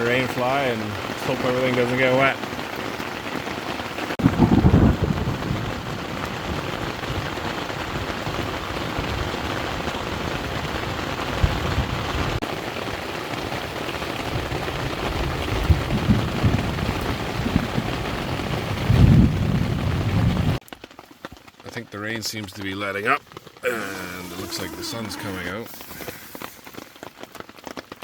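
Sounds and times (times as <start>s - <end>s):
heavy rain: 0.0s - 28.0s
low thunder rumbles: 4.2s - 7.3s, 15.3s - 20.6s.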